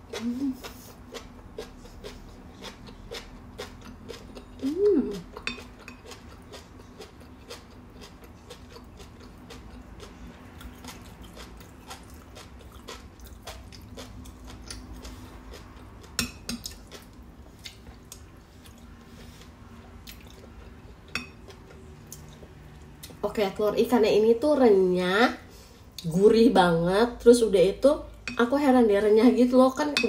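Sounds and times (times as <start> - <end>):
chewing crunchy fish roe: 0.1 - 22.9.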